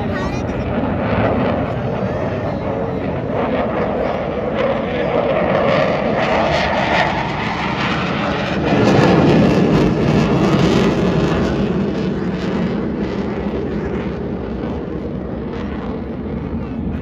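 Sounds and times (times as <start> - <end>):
aircraft flying overhead: 0.0 - 17.0.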